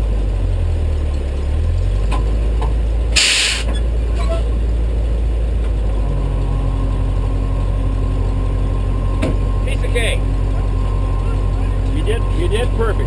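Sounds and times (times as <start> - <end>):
tow truck engine idling: 0.0 - 13.0
short hiss: 3.2 - 3.7.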